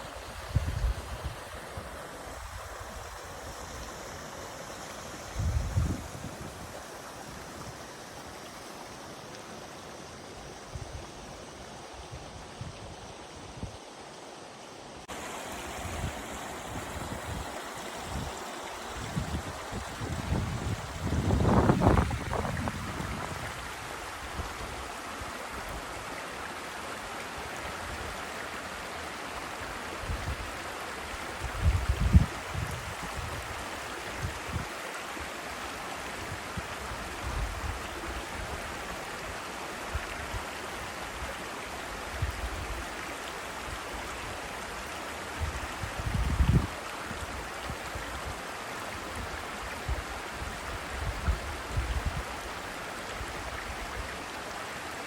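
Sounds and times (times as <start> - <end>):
waterfall rushing: 15.0 - 31.6.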